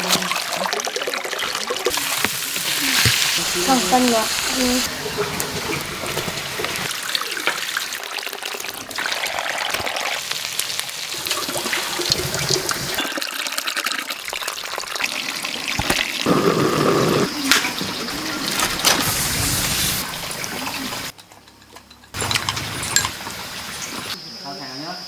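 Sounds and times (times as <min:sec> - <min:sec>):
water trickling: 0:00.0 - 0:16.3.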